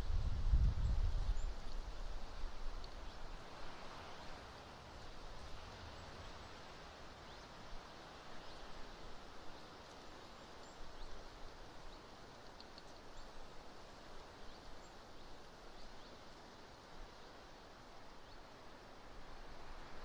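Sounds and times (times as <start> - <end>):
gusty wind on microphone: 0.0 - 2.0.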